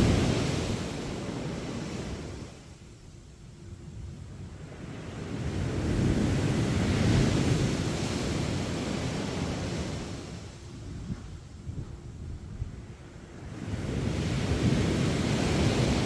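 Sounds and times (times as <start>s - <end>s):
sea waves breaking on beach: 0.0s - 2.7s, 4.7s - 10.6s, 13.2s - 16.0s.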